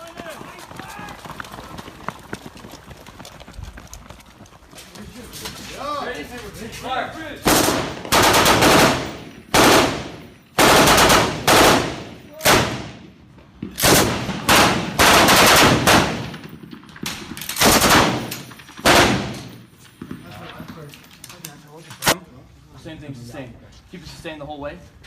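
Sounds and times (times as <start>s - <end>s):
machine gun bursts: 7.5s - 10.0s, 10.6s - 11.8s.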